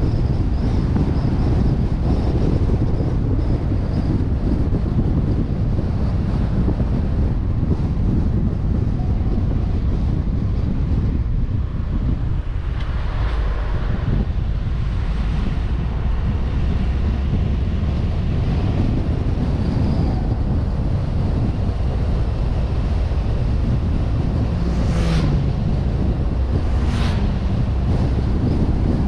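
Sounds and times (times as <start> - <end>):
car engine and road rumble: 0.0 - 29.0
wind noise on microphone: 0.0 - 29.0
short whoosh: 24.5 - 28.8.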